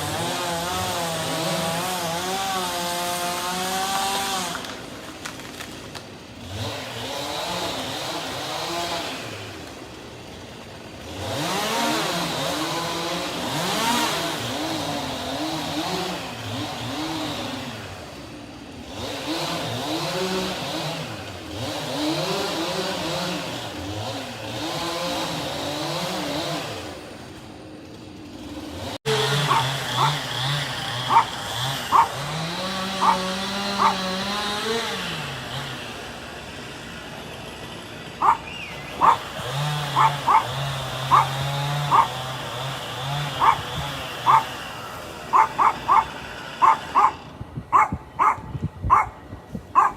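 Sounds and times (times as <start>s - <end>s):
engine hum: 0.0s - 49.9s
small engine revving: 0.0s - 49.9s
dog yipping: 29.3s - 30.2s, 31.1s - 31.3s, 31.9s - 32.2s, 33.0s - 34.0s, 38.2s - 39.3s, 40.0s - 40.5s, 41.1s - 42.2s, 43.4s - 44.5s, 45.3s - 49.2s.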